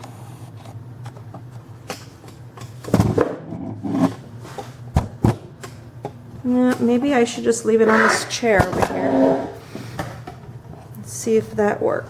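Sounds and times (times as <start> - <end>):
steady low hum: 7.4 - 10.0.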